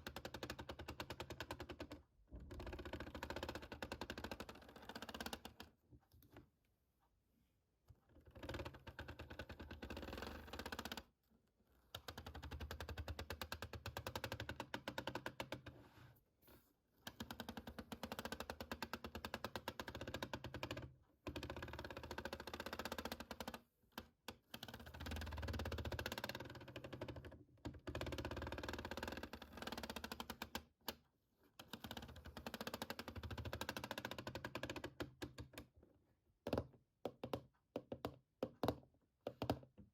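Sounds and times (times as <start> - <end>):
finger tapping on hard object: 36.4 - 39.9.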